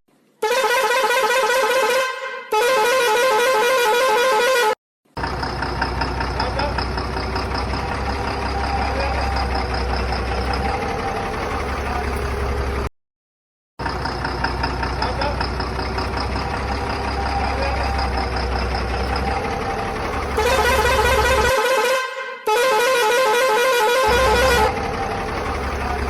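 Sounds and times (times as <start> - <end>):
vehicle horn: 0.4 - 4.8, 20.3 - 25.9
vehicle engine running: 5.2 - 12.9, 13.8 - 21.6, 24.1 - 26.0.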